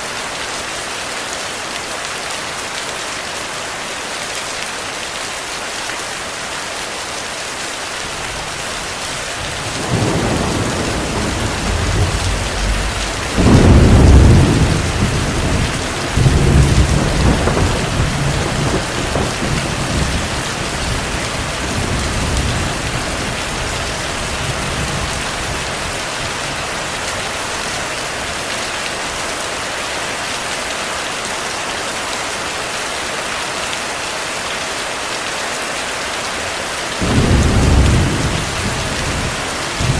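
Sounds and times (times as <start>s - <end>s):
heavy rain: 0.0s - 39.9s
thunder rumbling: 9.2s - 25.8s, 37.0s - 39.9s.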